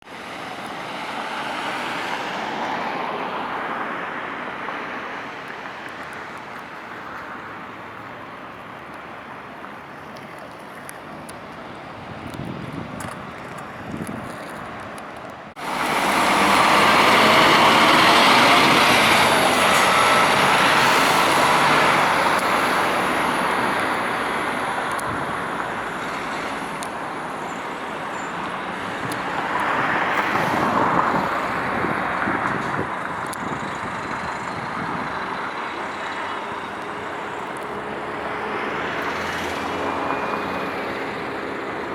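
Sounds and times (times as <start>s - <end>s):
road noise: 0.0s - 41.9s
coach diesel engine: 13.4s - 41.9s.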